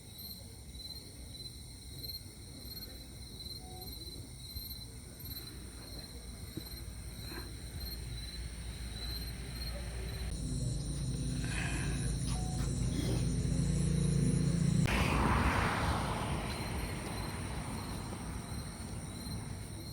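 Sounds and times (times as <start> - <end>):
insects chirping: 0.0 - 19.9
low rumble: 9.1 - 19.6.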